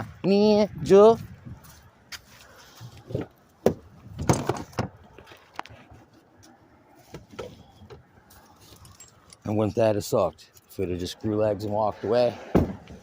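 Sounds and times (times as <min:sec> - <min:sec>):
hard objects knocking and clunking: 0:03.1 - 0:05.0.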